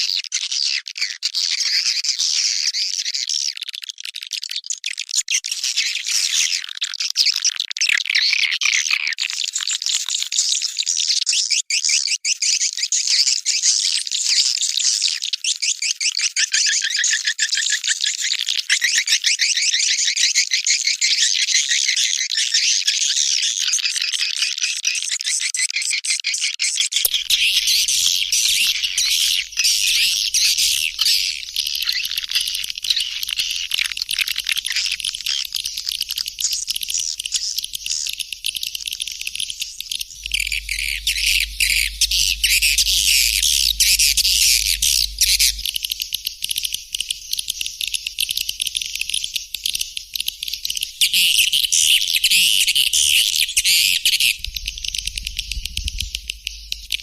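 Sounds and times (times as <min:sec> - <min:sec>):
recorded swiftlet twittering: 0:27.1 - 0:57.0
faint low hum: 0:35.0 - 0:47.6, 0:54.1 - 0:57.0.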